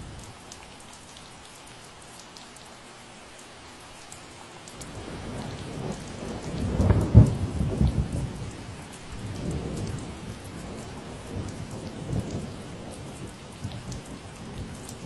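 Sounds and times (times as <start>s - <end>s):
steady rain: 0.0s - 15.0s
rumble of thunder: 4.8s - 15.0s.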